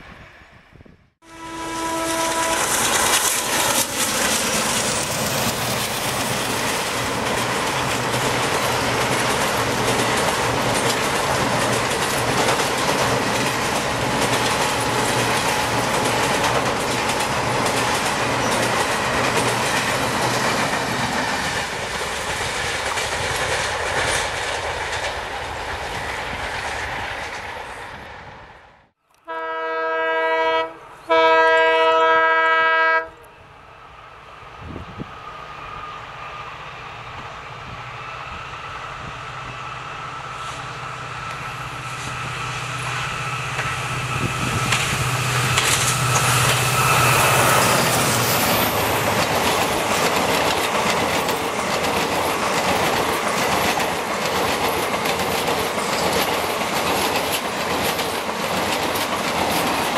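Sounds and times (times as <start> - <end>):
rush of train wheels and coaches: 0.0 - 59.9
train horn: 1.2 - 3.2, 29.2 - 33.4, 45.5 - 48.2
multi-tone locomotive horn: 1.2 - 3.8, 29.1 - 33.4, 40.2 - 48.3.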